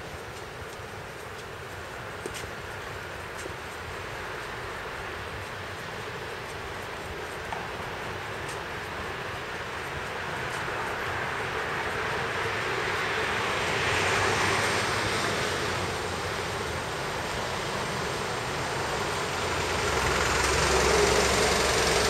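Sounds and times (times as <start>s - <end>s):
train rumbling on viaduct: 0.0s - 22.0s.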